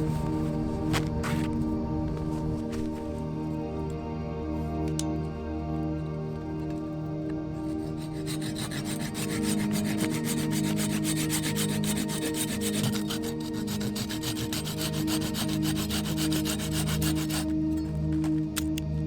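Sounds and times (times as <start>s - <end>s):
soft background music: 0.0s - 19.0s
rapid rasping scrape: 7.6s - 18.3s.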